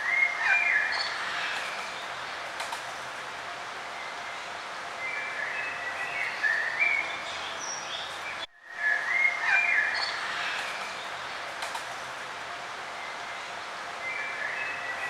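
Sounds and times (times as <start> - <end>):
songbirds singing: 0.0 - 2.4, 3.9 - 11.4, 12.9 - 15.0
outdoor ambience hiss: 0.0 - 15.0.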